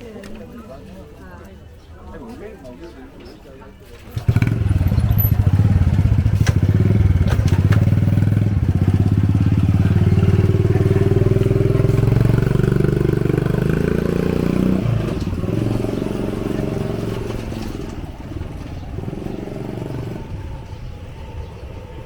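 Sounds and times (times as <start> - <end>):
motorbike engine putter: 4.1 - 9.2.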